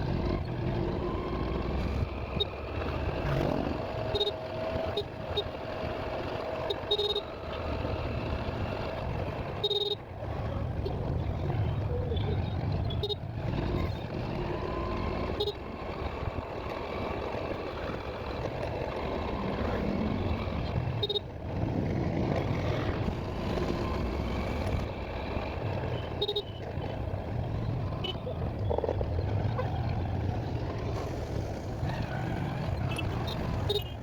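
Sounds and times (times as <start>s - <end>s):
road noise: 0.0s - 34.0s
vehicle engine: 0.0s - 34.0s.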